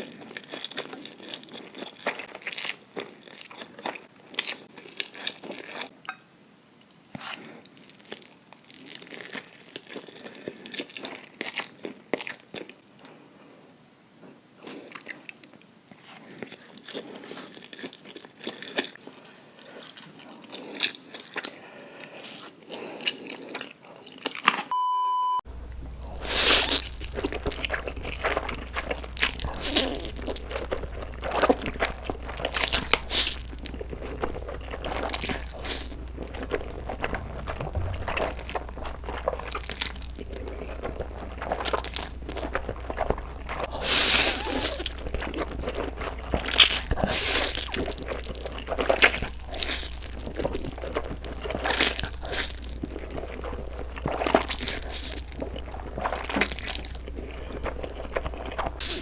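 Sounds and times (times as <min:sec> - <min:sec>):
person chewing and crunching: 0:00.0 - 0:06.0, 0:07.2 - 0:13.2, 0:14.6 - 0:24.7, 0:25.6 - 0:59.0
short steady beep: 0:24.7 - 0:25.4
low hum: 0:25.2 - 0:47.0.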